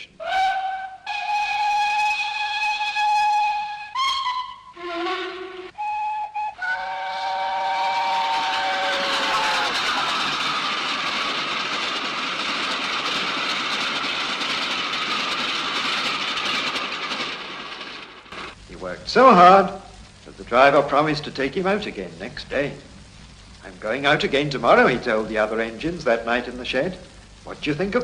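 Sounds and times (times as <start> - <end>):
steam locomotive whistle: 0.0 - 13.8
steam train running: 0.0 - 28.0.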